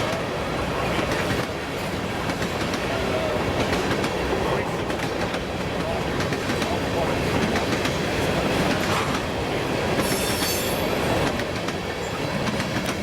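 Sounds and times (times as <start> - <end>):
train wheels clicking over rail joints: 0.9 - 13.0
high wheel squeal: 10.0 - 11.0.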